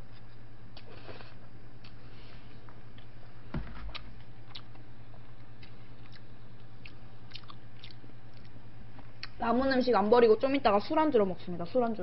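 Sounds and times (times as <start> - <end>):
steady low hum: 0.0 - 12.0
chewing spaghetti: 3.9 - 8.6.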